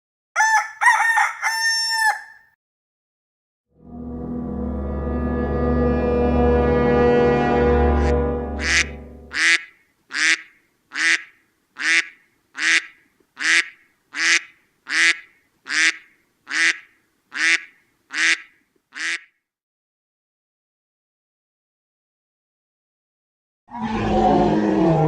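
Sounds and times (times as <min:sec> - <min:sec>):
low sustained horn-like tone: 0:03.8 - 0:09.3
nasal quack-like call: 0:08.6 - 0:19.4.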